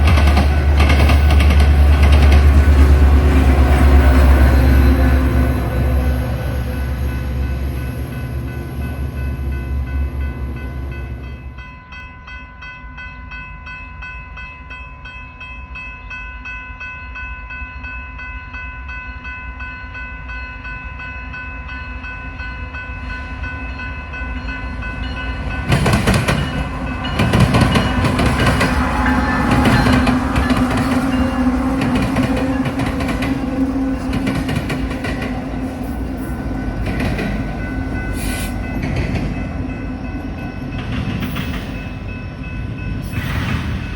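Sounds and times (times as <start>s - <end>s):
train rumbling past: 0.0s - 13.4s, 19.6s - 43.9s
steady tones: 24.4s - 43.9s.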